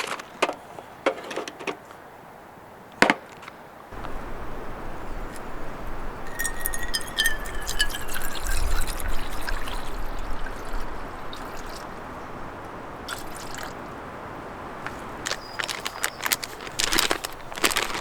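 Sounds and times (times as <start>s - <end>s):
liquid pouring and trickling: 4.0s - 14.2s, 14.8s - 18.0s.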